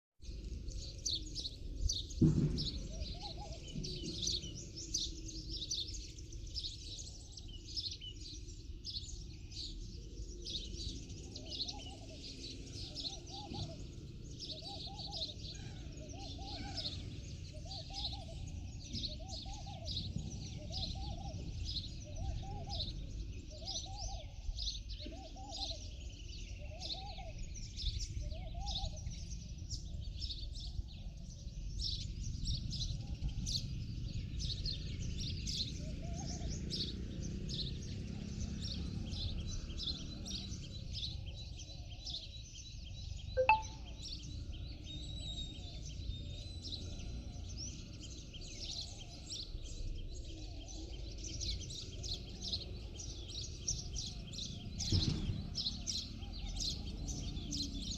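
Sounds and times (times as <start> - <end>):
birds chirping: 0.3 - 57.9
lower arched bird call: 43.4 - 44.0.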